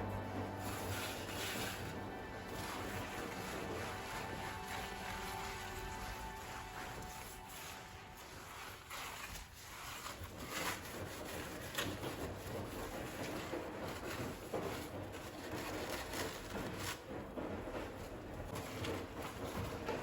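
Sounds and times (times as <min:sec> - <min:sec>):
soft rubbing: 0:00.0 - 0:12.0.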